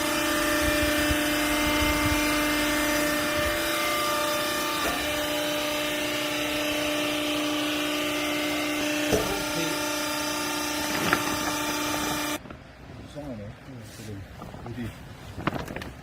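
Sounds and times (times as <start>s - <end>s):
hydraulic power unit whining: 0.0s - 12.5s.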